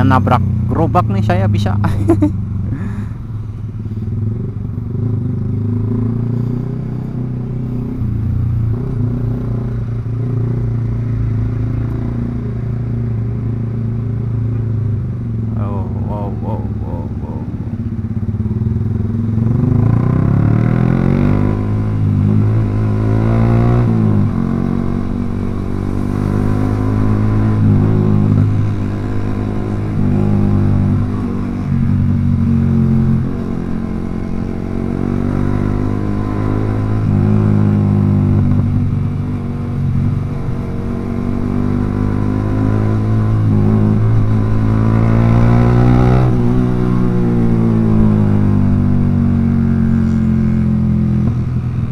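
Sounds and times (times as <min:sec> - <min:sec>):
motorcycle engine rising and falling: 0:00.0 - 0:51.9.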